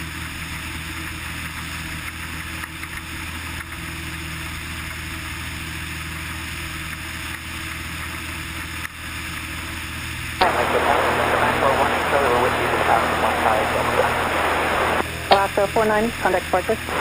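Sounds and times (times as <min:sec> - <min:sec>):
propeller plane engine droning: 0:09.2 - 0:17.0
rushing air noise: 0:10.4 - 0:15.4.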